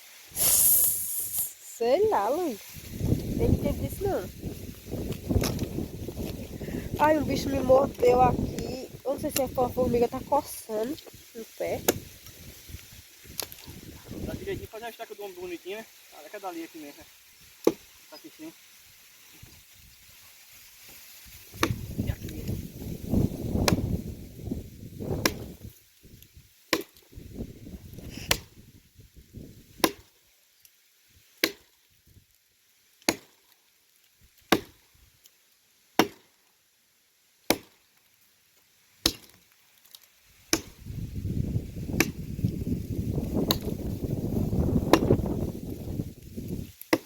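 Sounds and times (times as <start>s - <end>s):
blade chopping wood: 11.8s - 12.0s, 17.6s - 17.9s, 21.5s - 21.8s, 26.7s - 27.0s, 28.2s - 28.5s, 29.8s - 30.1s, 31.4s - 31.7s, 33.0s - 33.4s, 34.5s - 34.8s, 36.0s - 36.3s, 37.5s - 37.8s, 39.0s - 39.4s, 40.5s - 40.8s, 41.9s - 42.2s, 43.4s - 43.7s, 44.8s - 45.2s.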